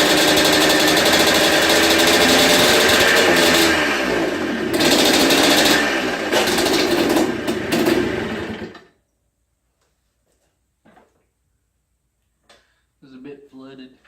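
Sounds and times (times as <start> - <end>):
two-stroke engine revving unevenly: 0.0 - 8.9.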